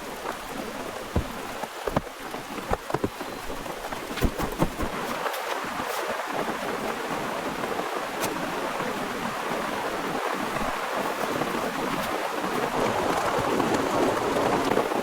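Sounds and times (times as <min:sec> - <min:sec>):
heavy rain falling: 0:05.6 - 0:15.0.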